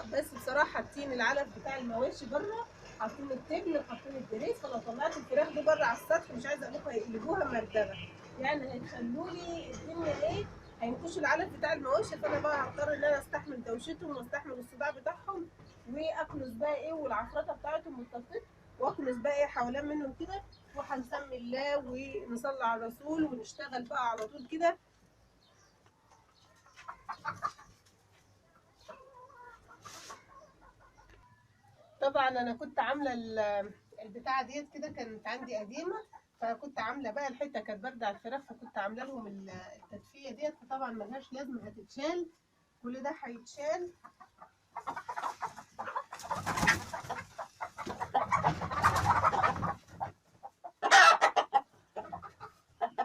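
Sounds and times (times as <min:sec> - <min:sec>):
chickens clucking: 0:00.0 - 0:53.0
drawn-out chicken call: 0:25.9 - 0:32.1, 0:44.0 - 0:53.0.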